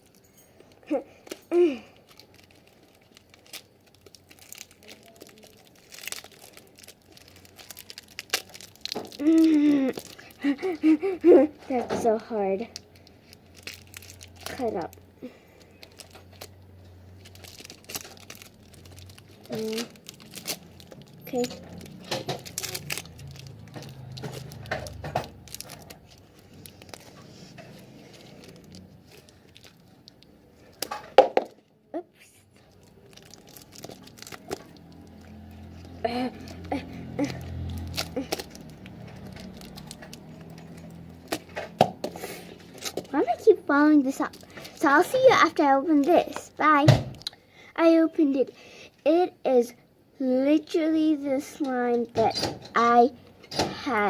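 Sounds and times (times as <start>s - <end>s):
plastic packaging crinkling: 0.0s - 31.8s, 32.4s - 47.4s
person grunting with effort: 36.0s - 37.5s.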